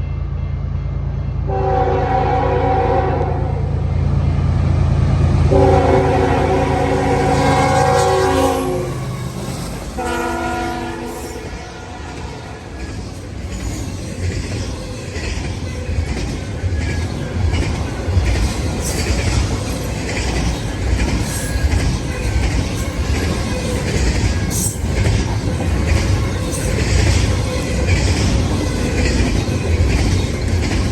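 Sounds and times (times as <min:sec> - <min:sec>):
train rumbling past: 0:00.0 - 0:30.9
locomotive air horn blasts: 0:01.5 - 0:03.6, 0:05.5 - 0:09.2, 0:10.0 - 0:12.3
wheels clattering over rails: 0:12.0 - 0:30.9.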